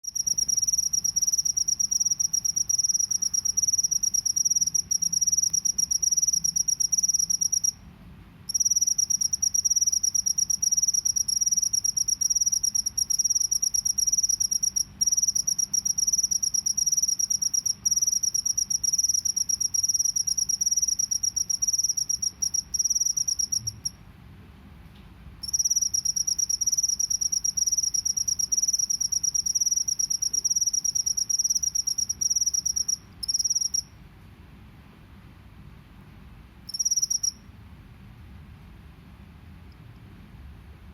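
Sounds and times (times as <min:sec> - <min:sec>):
cricket trilling: 0:00.0 - 0:07.8, 0:08.5 - 0:24.0, 0:25.4 - 0:33.9, 0:36.7 - 0:37.4.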